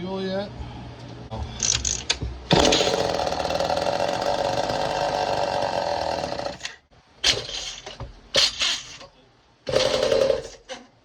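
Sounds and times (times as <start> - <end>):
chainsaw engine sputtering: 2.5 - 6.7, 9.7 - 10.6.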